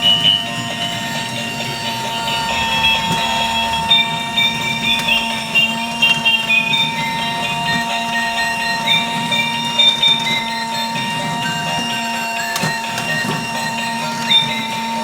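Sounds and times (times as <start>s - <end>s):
electric motor whine: 0.0s - 15.0s
tinny electronic beeping tune: 0.2s - 6.4s.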